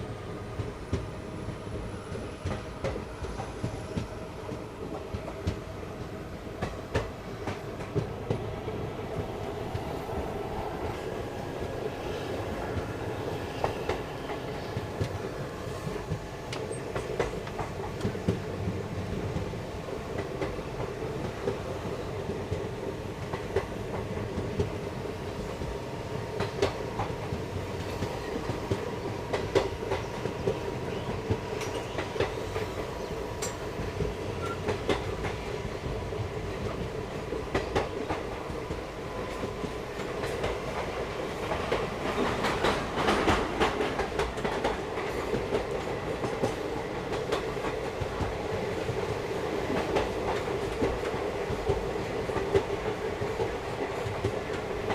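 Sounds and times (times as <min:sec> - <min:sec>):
steady train rumble: 0:00.0 - 0:54.9
train wheels clacking over rail joints: 0:39.4 - 0:49.1.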